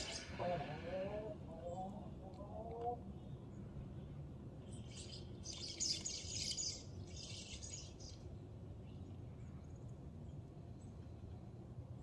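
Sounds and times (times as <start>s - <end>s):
harsh buzzy bird calls: 0.0s - 0.6s
low background rumble: 0.0s - 12.0s.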